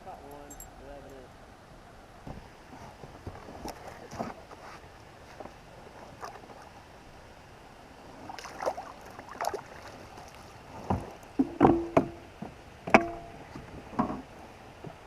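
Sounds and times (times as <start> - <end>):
handling noises on kayak: 9.9 - 15.0.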